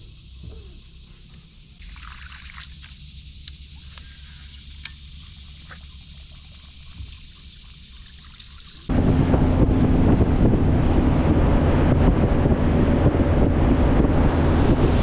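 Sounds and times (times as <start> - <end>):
steady high hiss: 0.0 - 8.9
small splashes: 1.8 - 8.9
water trickling and dripping: 1.8 - 8.9.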